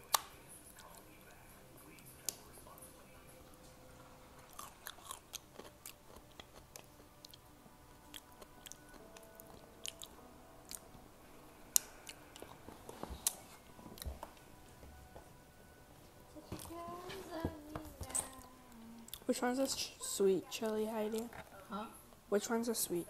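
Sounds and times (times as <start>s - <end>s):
person chewing crunchy food: 4.4s - 10.8s.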